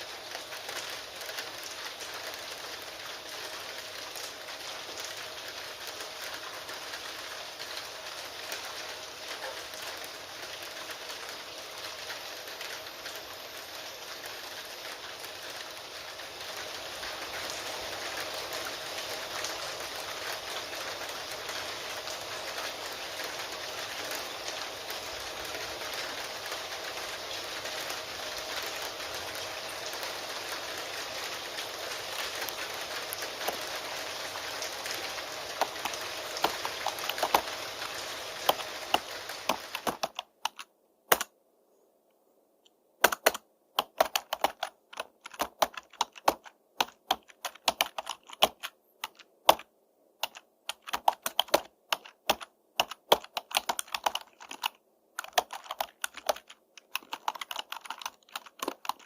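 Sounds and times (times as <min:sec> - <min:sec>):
steady rain: 0:00.0 - 0:41.4, 0:42.7 - 0:59.0
keyboard typing: 0:32.1 - 0:33.8, 0:34.8 - 0:41.3, 0:43.0 - 0:59.0.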